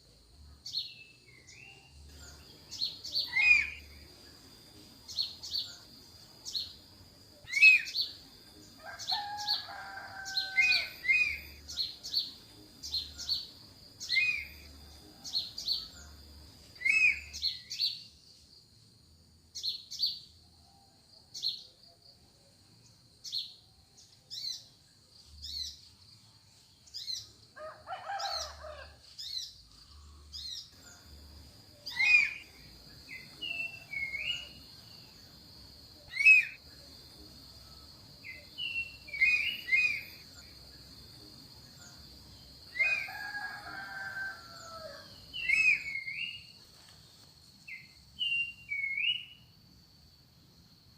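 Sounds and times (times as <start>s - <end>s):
lower bird call: 3.1s - 4.0s, 9.1s - 11.7s, 31.8s - 34.6s, 36.0s - 36.6s, 42.7s - 46.5s
high falling bird chirps: 31.8s - 35.2s, 36.0s - 36.6s, 42.6s - 46.6s.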